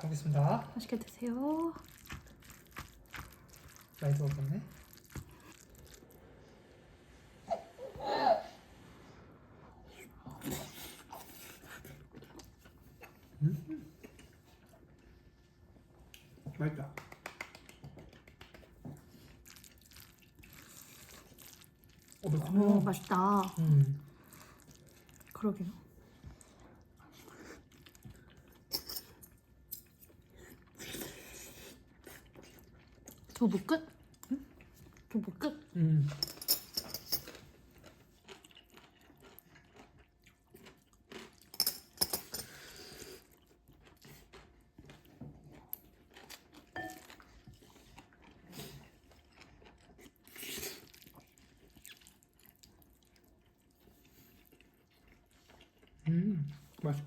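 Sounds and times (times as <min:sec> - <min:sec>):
chewing food: 0:00.6 - 0:06.4, 0:10.1 - 0:57.0
spoon clinking on a bowl: 0:28.7 - 0:29.1, 0:46.8 - 0:47.2.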